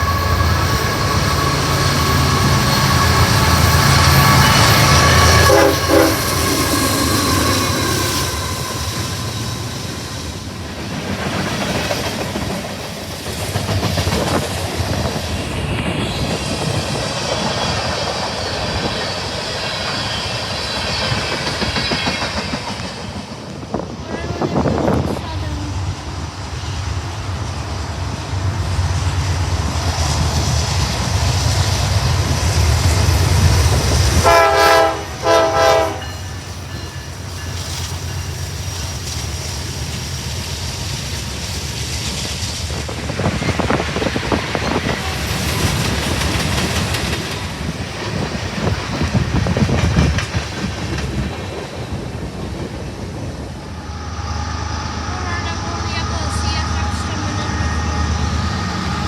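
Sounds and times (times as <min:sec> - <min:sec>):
locomotive rumble: 0:00.0 - 0:59.0
locomotive horn blasts: 0:02.4 - 0:06.8, 0:34.2 - 0:36.2
wheels clattering over rail joints: 0:41.0 - 0:53.3.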